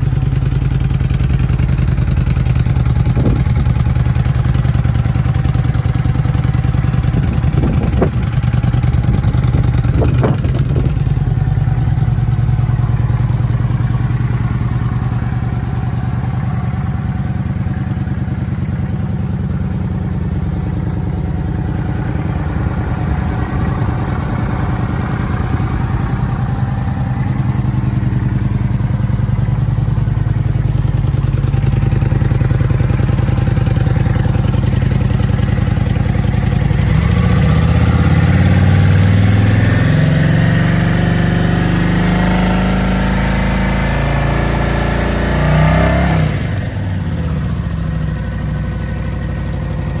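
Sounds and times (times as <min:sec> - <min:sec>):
motorcycle engine idling: 0:00.0 - 0:50.0.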